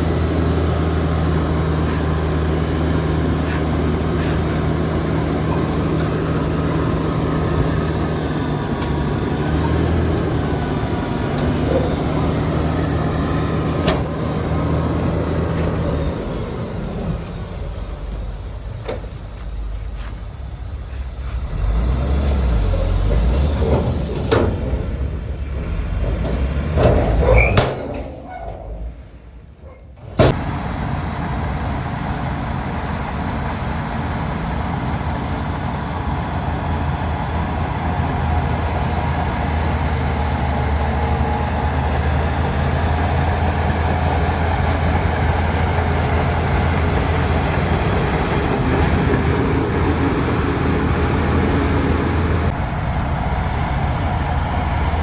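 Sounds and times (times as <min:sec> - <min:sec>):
heavy diesel machinery running: 0:00.0 - 0:55.0
metal clanks and knocks: 0:23.1 - 0:24.9, 0:26.0 - 0:28.7.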